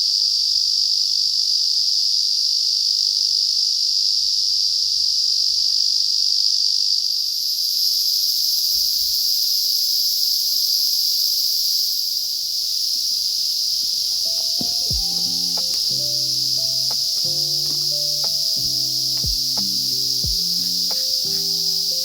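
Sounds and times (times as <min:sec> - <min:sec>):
insect chorus shrilling: 0:06.5 - 0:22.0.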